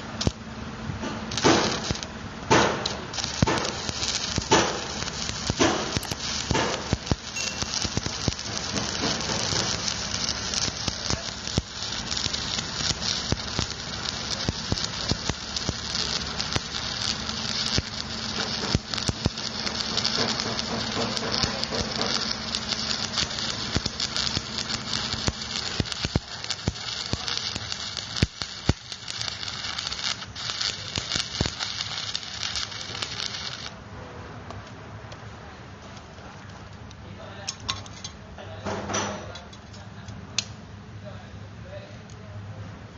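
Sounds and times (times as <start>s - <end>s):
welding arc crackling and sizzling: 0.0s - 33.8s
sharp pops: 1.0s - 33.6s.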